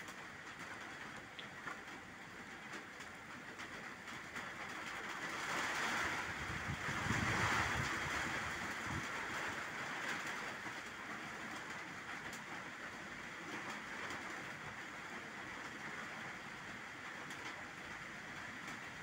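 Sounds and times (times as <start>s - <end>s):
rain on water and leaves: 0.0s - 19.0s
wind gust on microphone: 5.4s - 10.2s.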